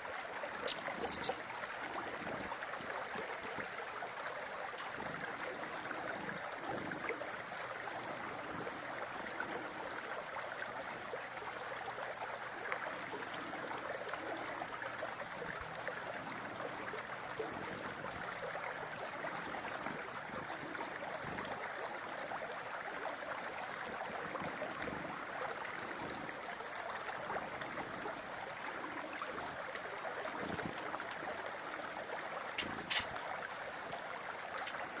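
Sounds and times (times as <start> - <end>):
sharp clicks: 32.6 - 33.2.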